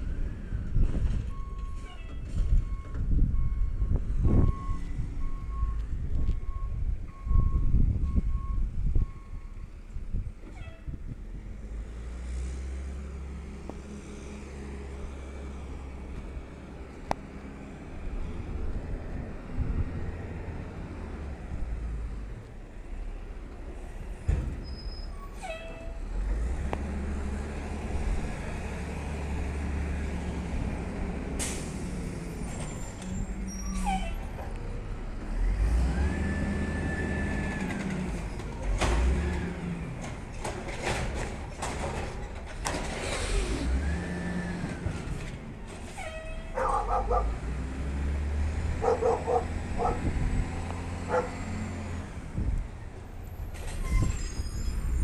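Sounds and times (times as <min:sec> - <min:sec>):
garbage truck engine revving: 0:35.1 - 0:45.4, 0:46.6 - 0:52.5
dog barking: 0:46.5 - 0:47.4, 0:48.8 - 0:50.1, 0:51.1 - 0:51.4.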